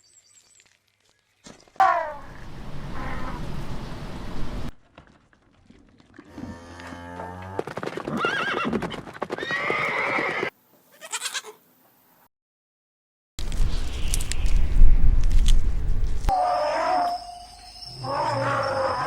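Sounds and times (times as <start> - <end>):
farm animals calling: 9.4 - 11.6, 16.3 - 19.0.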